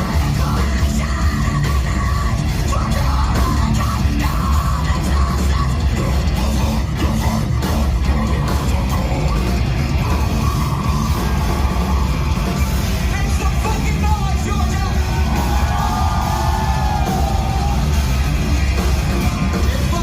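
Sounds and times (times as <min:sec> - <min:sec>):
person singing: 0:00.0 - 0:12.2
heavy rock band playing: 0:00.0 - 0:20.0.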